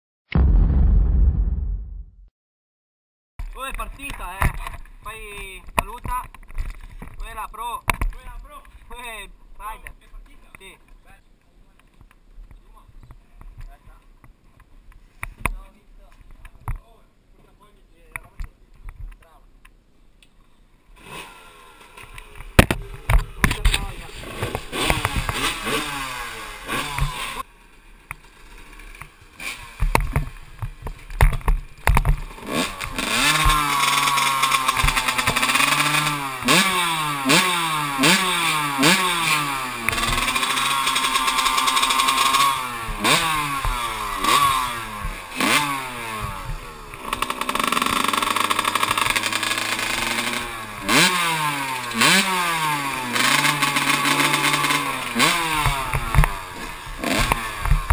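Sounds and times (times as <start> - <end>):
two-stroke motocross engine revving: 21.0 - 27.5, 28.2 - 57.9.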